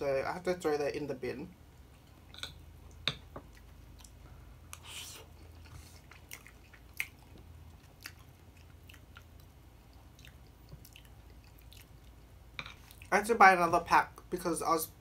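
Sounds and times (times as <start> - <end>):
wet mouth clicks from chewing: 5.4 - 12.2.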